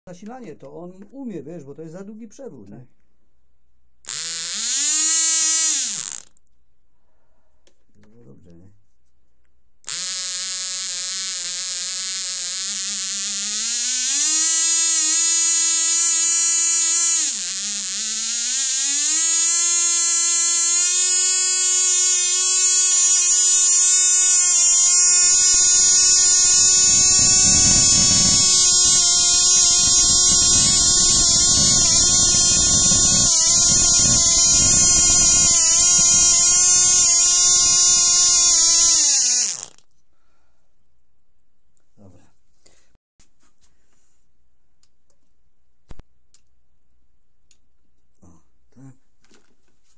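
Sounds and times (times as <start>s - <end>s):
model engine high-pitched whine: 4.1s - 6.3s, 9.9s - 39.8s.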